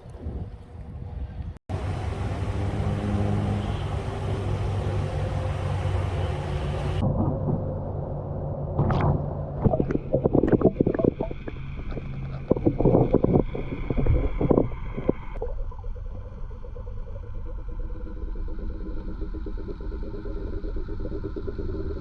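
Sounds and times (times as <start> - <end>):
low underwater hum: 1.7 - 22.0
underwater knocks and clicks: 8.8 - 15.3.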